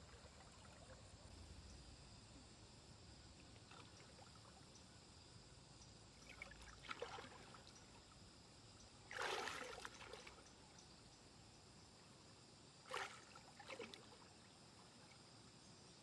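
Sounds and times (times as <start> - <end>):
stream water trickling: 0.0 - 16.0
water splashes: 6.2 - 8.0, 9.1 - 10.5.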